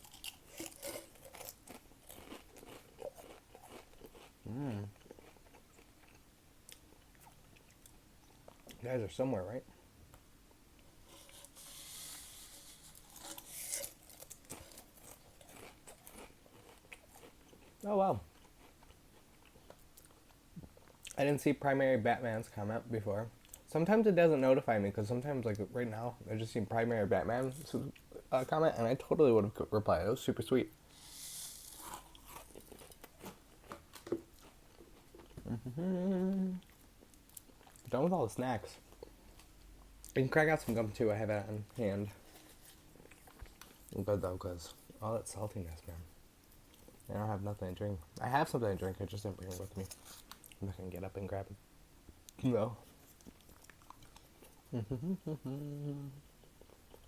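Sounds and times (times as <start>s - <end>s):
chewing crunchy chips: 0.0s - 8.8s, 11.2s - 21.2s, 31.3s - 35.9s, 52.9s - 57.0s
person humming mmm: 4.5s - 5.0s, 35.4s - 36.7s, 54.7s - 56.3s.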